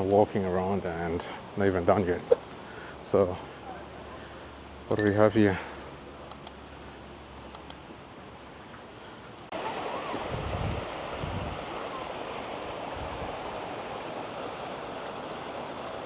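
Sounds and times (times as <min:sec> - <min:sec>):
faint clicks: 0:04.9 - 0:05.2, 0:06.3 - 0:06.6, 0:07.5 - 0:07.8.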